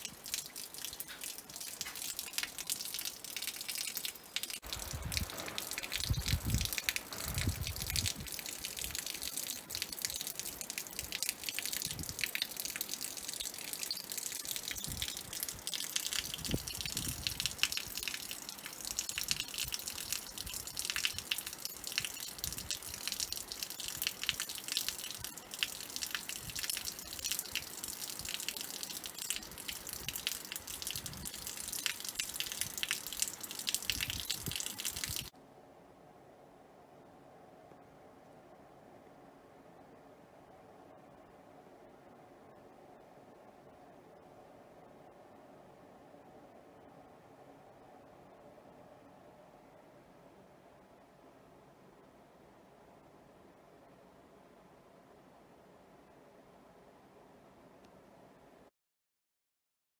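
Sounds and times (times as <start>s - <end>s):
water trickling and dripping: 0.0s - 35.3s.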